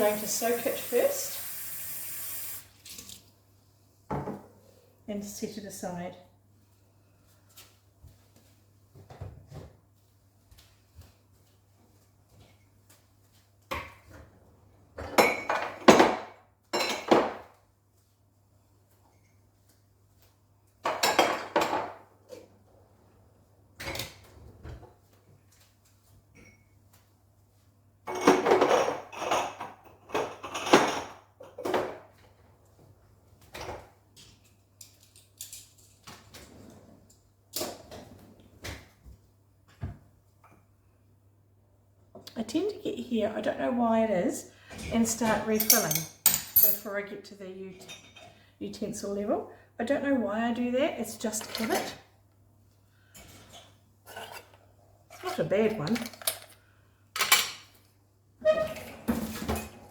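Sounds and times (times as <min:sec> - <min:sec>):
dishes clattering and clinking: 0:15.0 - 0:17.5, 0:20.8 - 0:22.5, 0:28.0 - 0:32.2, 0:45.4 - 0:46.9, 0:47.8 - 0:48.4, 0:57.2 - 0:57.8, 0:58.4 - 0:59.9
dishes clattering: 0:45.6 - 0:46.8.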